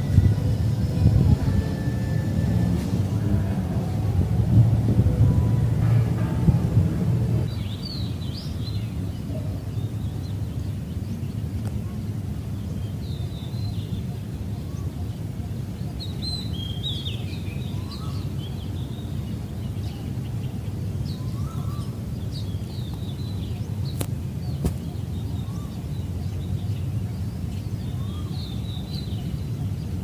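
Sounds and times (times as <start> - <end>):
low background rumble: 0.0 - 9.0.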